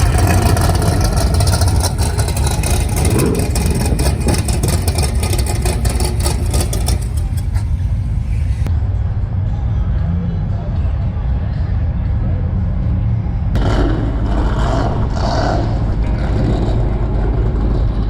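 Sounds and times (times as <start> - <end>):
rapid crackling: 0.0 - 8.7
car engine running hard: 0.0 - 18.0.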